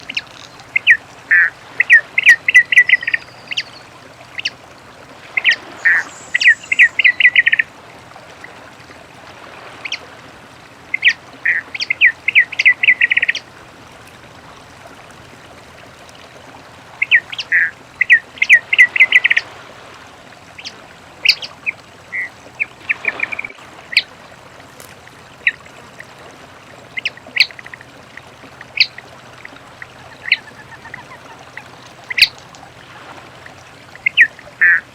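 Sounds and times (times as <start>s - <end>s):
bird singing: 0.0s - 4.6s, 5.4s - 7.6s, 29.8s - 32.4s.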